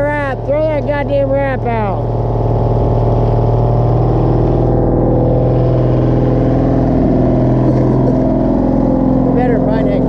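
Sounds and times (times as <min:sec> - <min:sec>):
heavy diesel engine running: 0:00.0 - 0:10.0.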